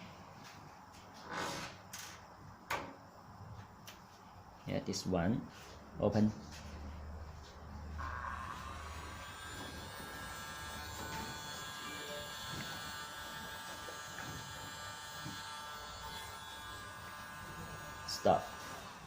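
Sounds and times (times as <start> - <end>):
blind motor electric whine: 7.6 - 19.0.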